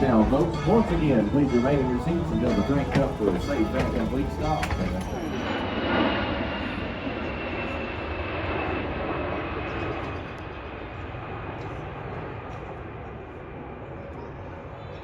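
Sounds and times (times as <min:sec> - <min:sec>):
steam train rumbling and hissing: 0:00.0 - 0:07.2.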